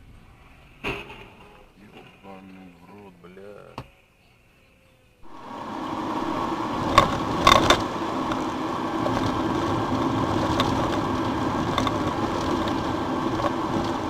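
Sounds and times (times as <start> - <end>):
car engine and road noise: 5.2 - 14.0.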